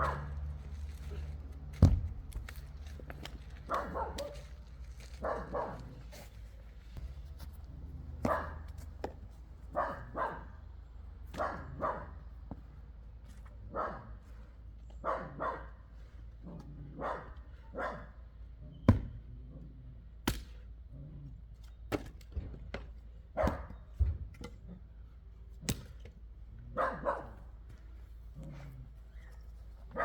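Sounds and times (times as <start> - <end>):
dog barking: 0.0 - 0.4, 3.7 - 4.5, 5.2 - 6.0, 8.2 - 8.7, 9.7 - 10.6, 11.3 - 12.2, 13.7 - 14.2, 15.0 - 15.8, 17.0 - 18.2, 23.4 - 23.8, 26.7 - 27.4
axe striking wood: 18.9 - 19.2, 20.2 - 20.6, 25.6 - 26.1.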